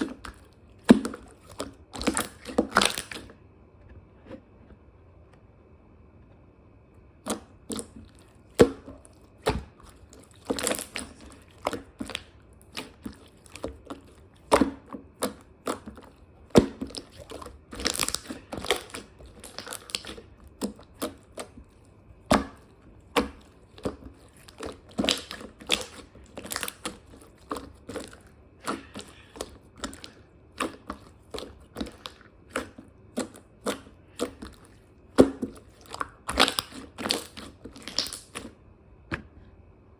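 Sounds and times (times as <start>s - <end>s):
sharp crunches and crackles: 7.7s - 21.7s, 22.3s - 38.5s.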